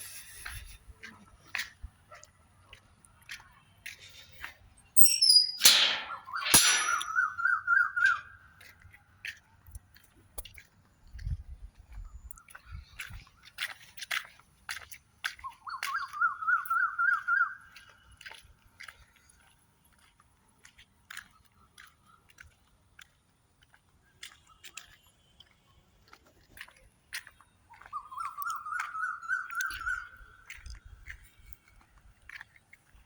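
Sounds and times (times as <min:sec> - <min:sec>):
warbling whistled call: 0:05.0 - 0:08.4, 0:15.6 - 0:17.6, 0:27.9 - 0:30.4.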